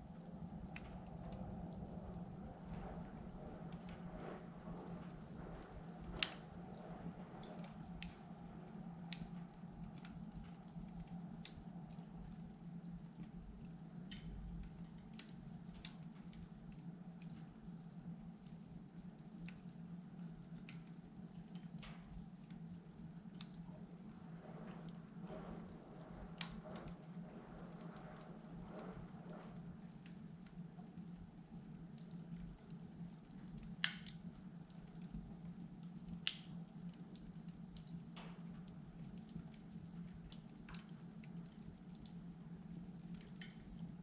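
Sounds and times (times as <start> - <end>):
low steady hum: 0.0 - 44.0
wood fire crackling: 0.0 - 44.0
sharp pops and snaps: 9.0 - 16.5, 20.4 - 42.5.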